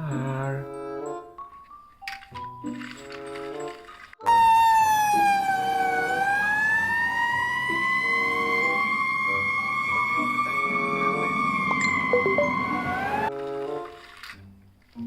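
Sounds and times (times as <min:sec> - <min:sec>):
fire engine siren wailing: 0:04.2 - 0:13.3.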